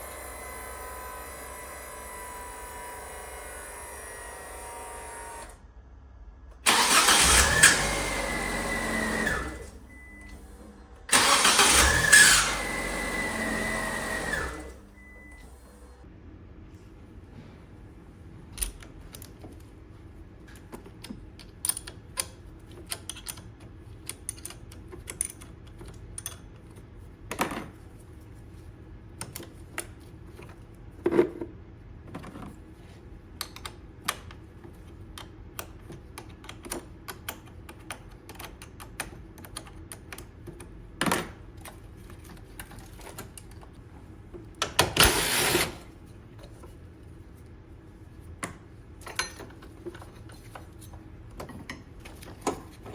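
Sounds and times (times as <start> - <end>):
tools and metal parts clicking: 20.5 - 26.4, 49.0 - 52.9.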